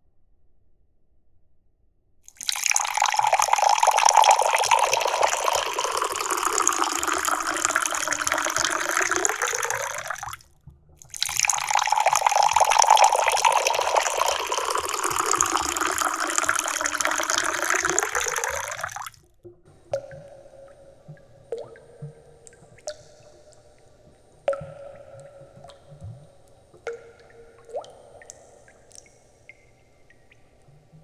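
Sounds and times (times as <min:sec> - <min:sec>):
tea pouring into pitcher: 0:02.3 - 0:10.4, 0:11.0 - 0:19.2.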